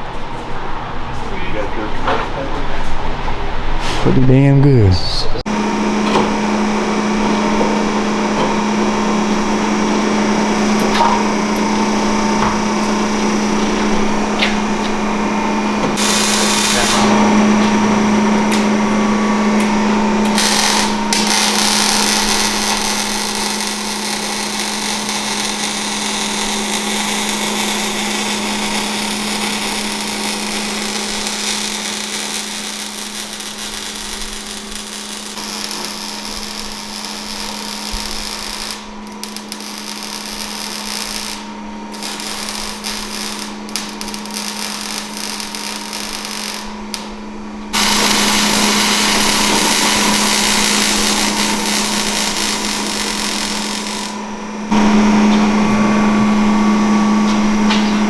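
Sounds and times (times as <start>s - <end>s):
power tool hissing: 5.5s - 58.0s.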